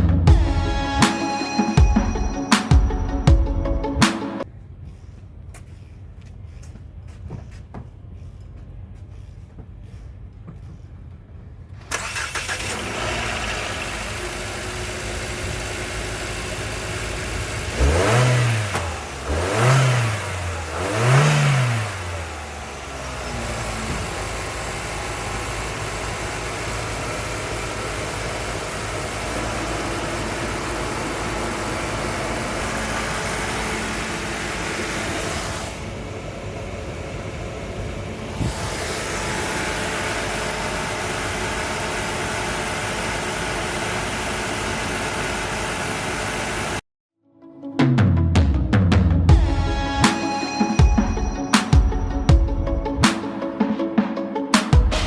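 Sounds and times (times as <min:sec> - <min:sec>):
car engine starting and idling: 0:11.5 - 0:46.8
car engine revving: 0:11.8 - 0:46.8.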